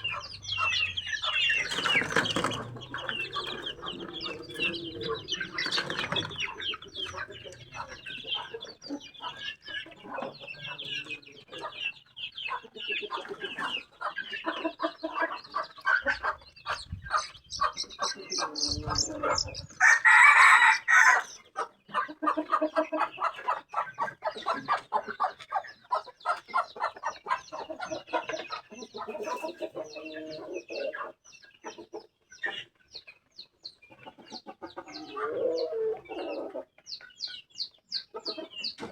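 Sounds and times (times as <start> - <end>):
chickens clucking: 0.0 - 38.9
rooster crowing: 18.6 - 21.3.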